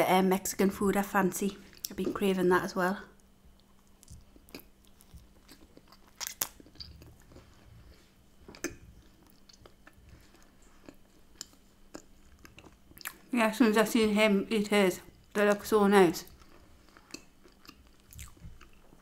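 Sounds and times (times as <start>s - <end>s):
person chewing: 3.5s - 13.3s, 16.2s - 19.0s
mouth clicks and smacks: 3.6s - 7.4s, 8.5s - 10.0s.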